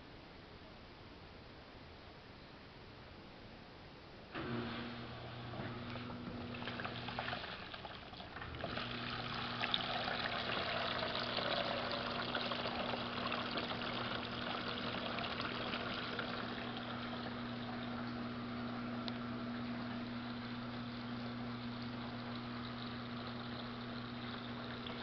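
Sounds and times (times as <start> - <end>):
drain pump humming: 4.3 - 25.0
water pouring into bucket: 5.7 - 18.4, 20.0 - 25.0.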